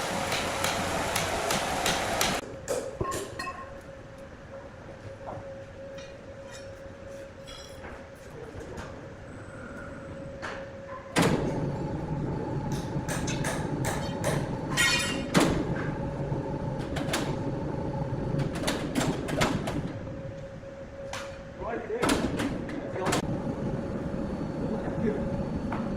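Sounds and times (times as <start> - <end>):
wood-cutting saw machinery humming: 0.0 - 2.4.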